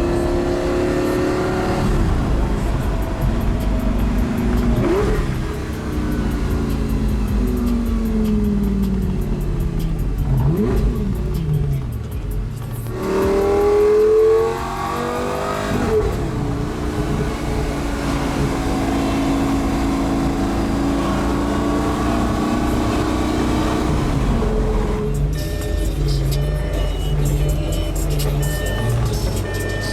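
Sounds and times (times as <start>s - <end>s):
car engine revving: 0.0s - 29.9s.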